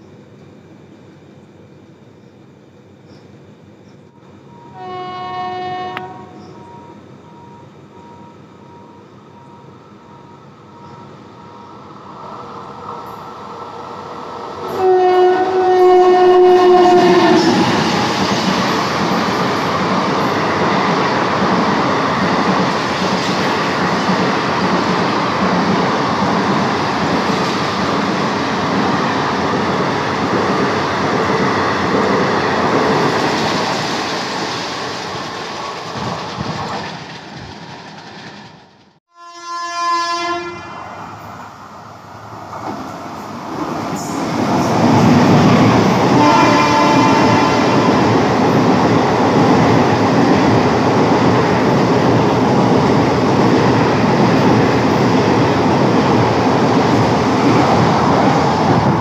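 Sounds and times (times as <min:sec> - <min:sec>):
train coaches rumbling past: 0:00.0 - 0:59.0
locomotive horn: 0:04.7 - 0:06.4, 0:14.7 - 0:17.6, 0:39.1 - 0:40.8, 0:46.1 - 0:48.0.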